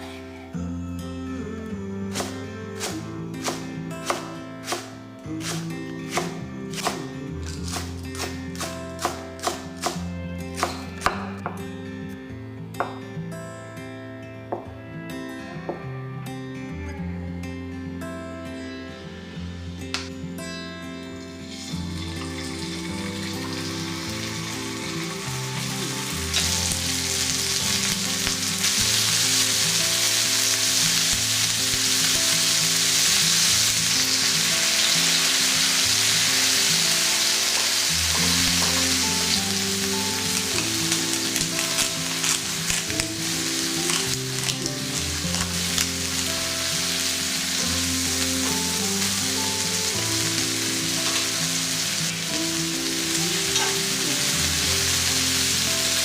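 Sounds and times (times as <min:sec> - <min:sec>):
background music: 0:00.0 - 0:56.0
food sizzling in a frying pan: 0:21.2 - 0:56.0.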